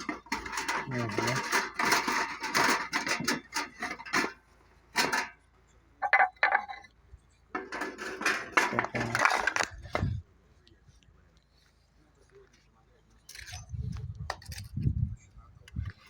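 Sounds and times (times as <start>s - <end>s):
metal objects clattering: 0.0s - 5.4s, 6.0s - 6.9s, 7.5s - 10.2s.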